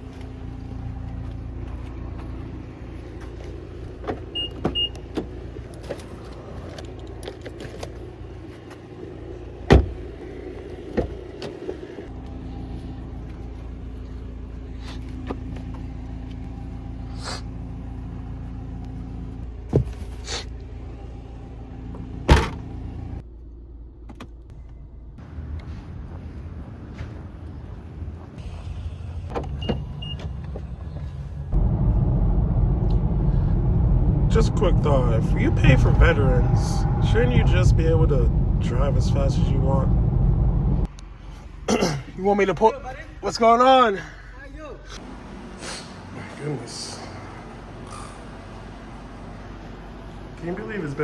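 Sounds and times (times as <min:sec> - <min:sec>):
car interior hum: 0:28.4 - 0:41.0.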